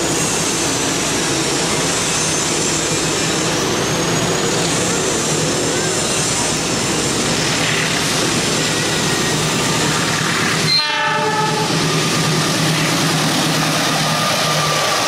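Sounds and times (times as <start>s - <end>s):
diesel locomotive engine humming: 0.0s - 15.0s
train and track noise: 0.0s - 15.0s
locomotive horn blast: 10.6s - 11.8s.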